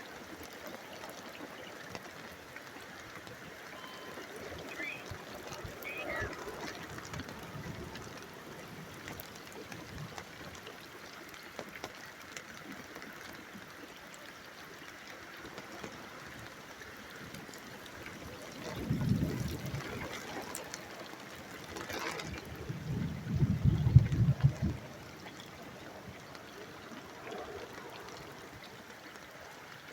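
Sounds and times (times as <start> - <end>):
steady rain falling: 0.0 - 29.9
water trickling: 0.0 - 29.9
water dripping: 0.1 - 14.2.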